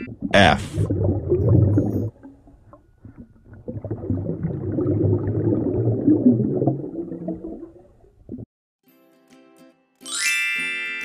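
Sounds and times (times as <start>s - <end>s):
underwater bubbling and gurgling: 0.0s - 8.5s.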